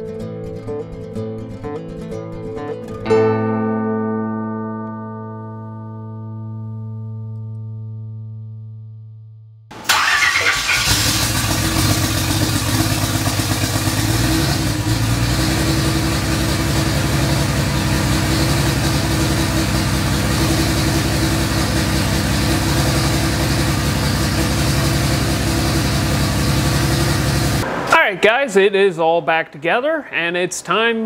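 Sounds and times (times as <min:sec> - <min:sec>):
engine idling: 0:09.8 - 0:27.7.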